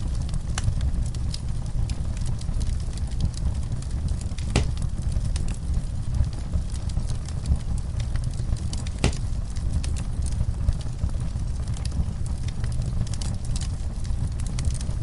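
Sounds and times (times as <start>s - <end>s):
fire crackling and popping: 0.0s - 15.0s
low rumble: 0.0s - 15.0s
sharp fire pop: 4.4s - 4.9s, 9.0s - 9.4s.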